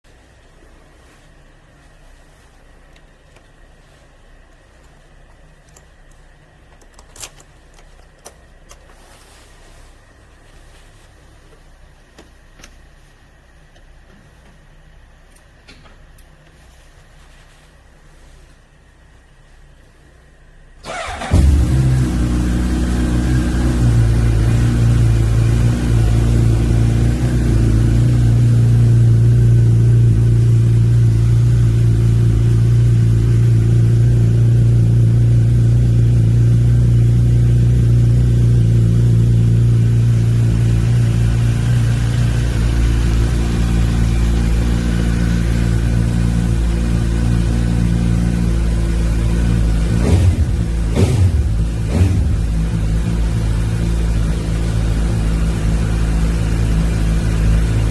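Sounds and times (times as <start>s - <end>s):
motorcycle engine idling: 20.8s - 57.9s.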